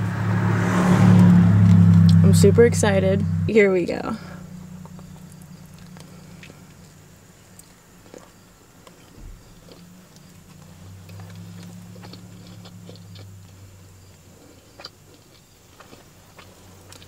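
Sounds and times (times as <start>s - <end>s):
faint low hum: 1.2s - 17.0s
person chewing food: 4.8s - 17.0s.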